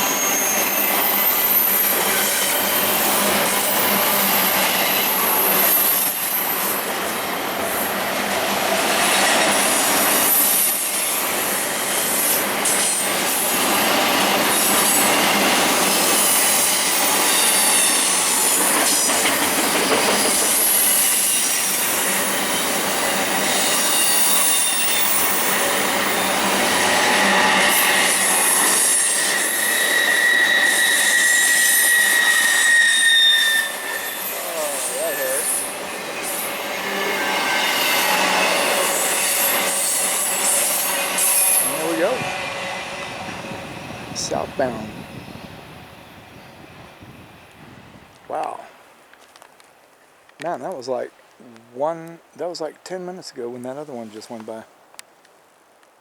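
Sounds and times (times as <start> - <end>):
high wheel squeal: 0.0 - 8.0, 8.8 - 44.2
freight train rushing past: 0.0 - 48.4.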